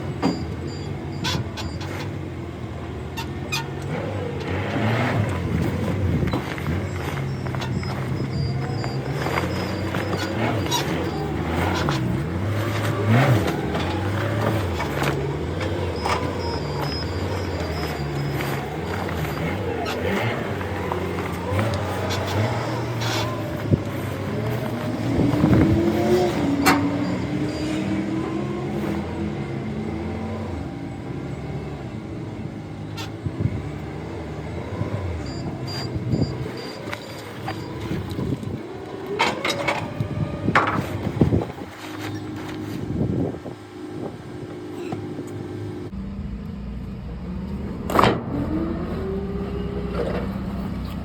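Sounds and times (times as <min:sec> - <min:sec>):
engine running and revving: 0:00.0 - 0:51.0.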